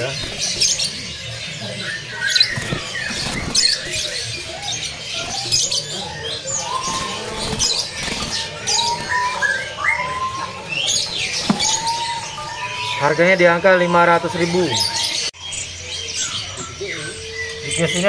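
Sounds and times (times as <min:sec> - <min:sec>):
small birds chirping and whistling: 0:00.0 - 0:18.0
bird wings flapping: 0:02.3 - 0:04.3, 0:06.7 - 0:09.3.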